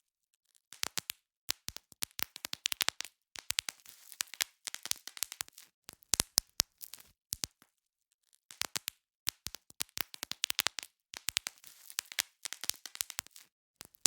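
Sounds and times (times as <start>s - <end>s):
bubble wrap popping: 0.7s - 7.7s, 8.5s - 14.0s.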